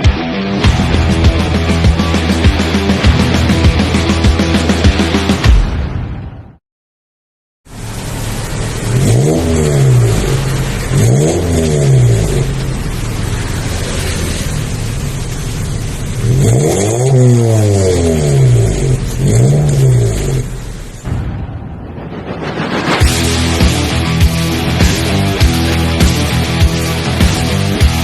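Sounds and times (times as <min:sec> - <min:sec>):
car engine revving: 0:07.7 - 0:21.1, 0:22.0 - 0:28.0.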